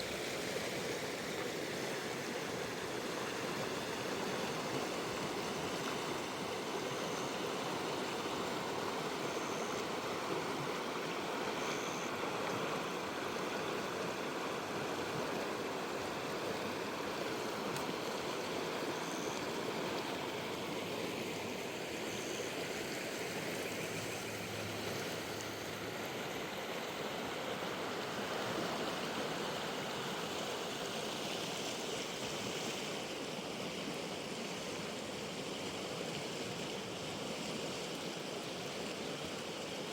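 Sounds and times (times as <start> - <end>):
river rushing over rocks: 0.0 - 39.9
faint high peeps: 19.0 - 19.4.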